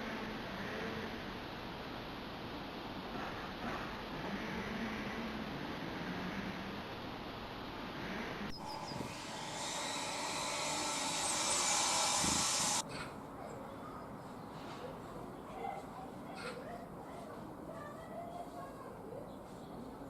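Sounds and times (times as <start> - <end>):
steady rushing hiss: 8.5 - 12.9.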